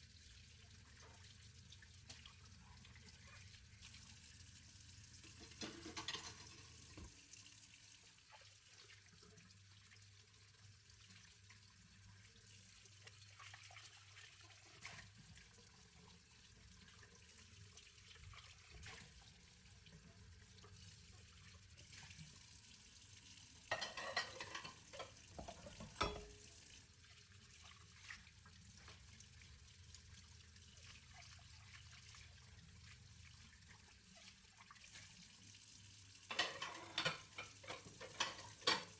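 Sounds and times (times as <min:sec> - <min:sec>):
water running in sink: 0:00.0 - 0:38.9
dishes clinking and knocking: 0:05.4 - 0:06.6, 0:23.7 - 0:26.4, 0:36.3 - 0:38.9.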